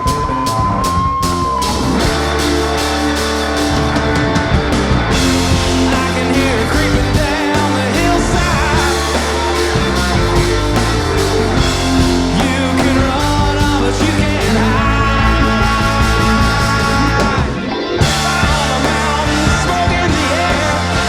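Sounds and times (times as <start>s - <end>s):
rock band playing: 0.0s - 21.0s
lead singer vocals: 5.1s - 21.0s.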